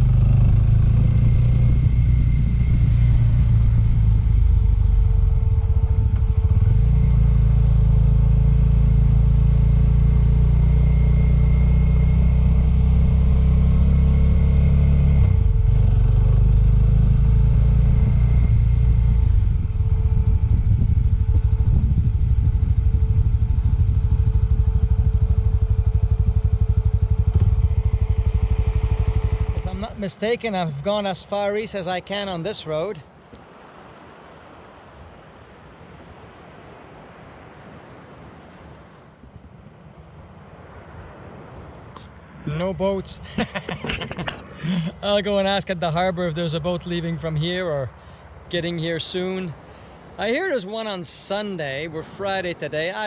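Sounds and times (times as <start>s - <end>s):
motorcycle engine running: 0.0s - 30.3s.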